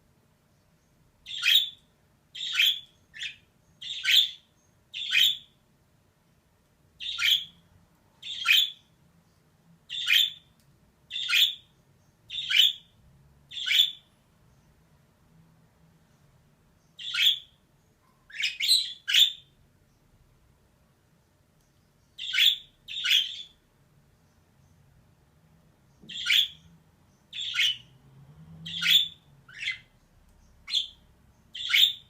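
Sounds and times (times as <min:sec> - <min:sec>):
budgerigar calling: 0:01.3 - 0:01.8, 0:02.4 - 0:05.5, 0:07.0 - 0:07.6, 0:08.2 - 0:08.8, 0:09.9 - 0:10.4, 0:11.1 - 0:11.7, 0:12.3 - 0:12.9, 0:13.5 - 0:14.0, 0:17.0 - 0:17.5, 0:18.3 - 0:19.5, 0:22.2 - 0:23.6, 0:26.1 - 0:26.6, 0:27.3 - 0:27.9, 0:28.7 - 0:29.9, 0:30.7 - 0:32.0.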